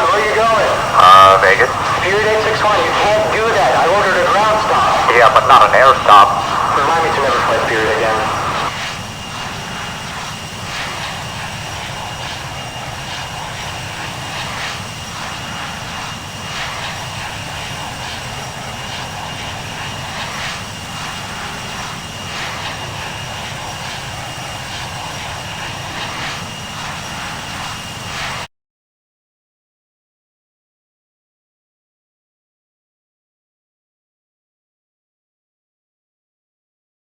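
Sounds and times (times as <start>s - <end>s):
jet engines roaring with high whine: 0.0s - 28.5s.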